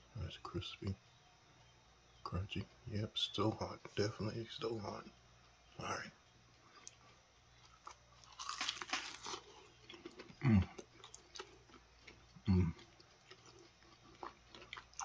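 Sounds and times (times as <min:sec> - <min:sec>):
chewing with crackles: 0:06.5 - 0:15.0
crunching bite into crispy crust: 0:07.6 - 0:15.0
man humming mm: 0:10.4 - 0:10.8, 0:12.5 - 0:12.8.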